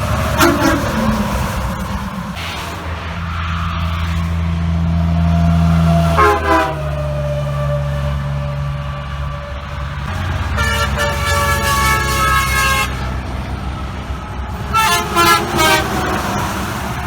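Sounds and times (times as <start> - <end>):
truck traffic rumble: 0.0 - 17.0
truck air horn: 0.1 - 2.5, 5.9 - 7.7, 9.3 - 13.2, 14.6 - 16.4.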